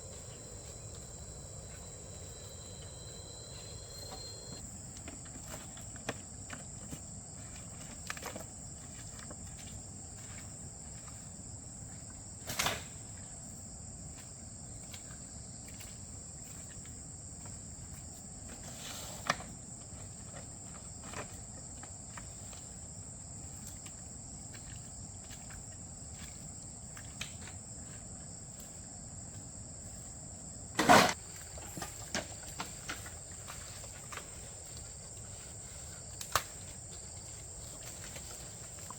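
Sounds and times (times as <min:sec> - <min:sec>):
insect chirring: 0:00.0 - 0:04.6.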